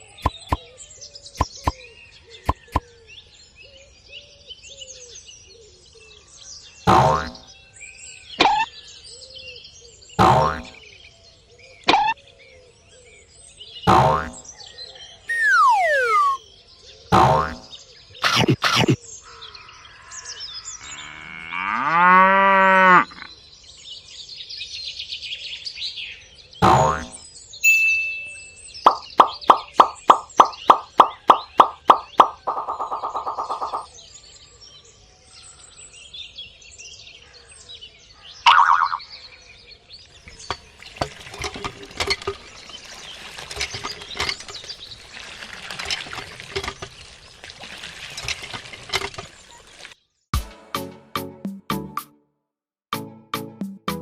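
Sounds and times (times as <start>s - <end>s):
water pouring and trickling: 15.3s - 16.4s, 28.9s - 33.9s, 40.0s - 50.0s
faint bird chirps: 15.3s - 16.5s, 27.6s - 33.9s
cow mooing: 20.8s - 23.3s
small splashes and clicks: 40.0s - 50.0s.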